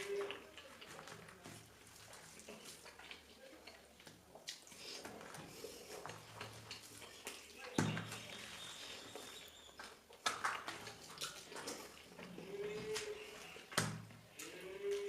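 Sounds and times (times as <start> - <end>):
person eating: 0.0 - 9.5, 10.1 - 15.0.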